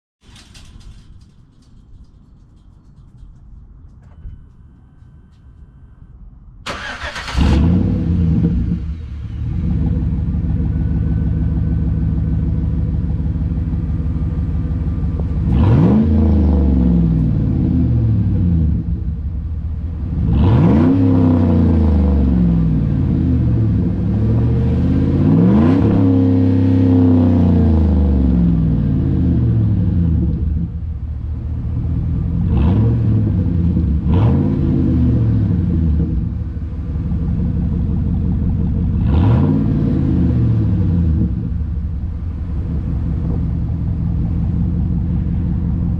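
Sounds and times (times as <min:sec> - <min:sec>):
car engine starting and idling: 0:00.2 - 0:45.9
car engine revving: 0:06.7 - 0:45.9.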